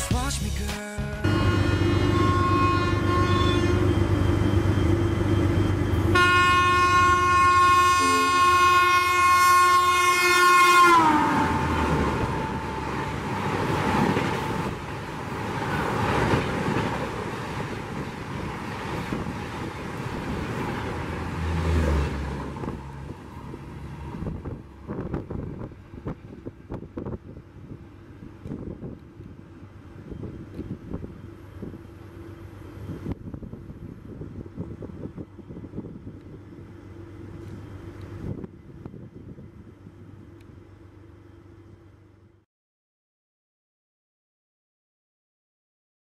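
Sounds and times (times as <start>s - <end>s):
locomotive horn blasts: 1.2s - 4.0s, 6.1s - 13.5s
train coaches rushing and clattering: 11.5s - 27.2s.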